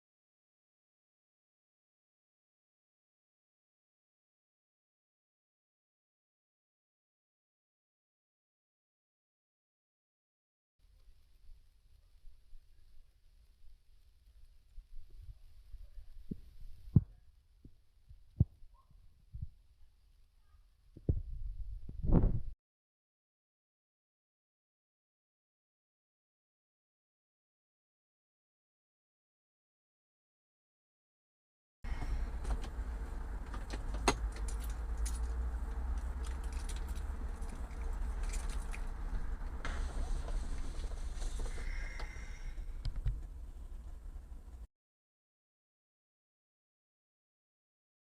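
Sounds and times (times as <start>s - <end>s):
faint steady hum: 31.9s - 44.7s
low rumble: 31.9s - 44.7s
sharp clicks and rattles: 32.3s - 42.1s.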